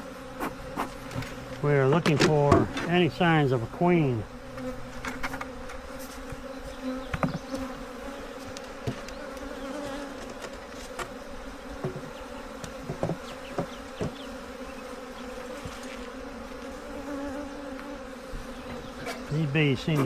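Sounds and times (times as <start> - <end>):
honeybees buzzing: 0.0 - 20.0
hive frames clicking and knocking: 0.4 - 3.1, 4.5 - 7.8, 8.4 - 14.5.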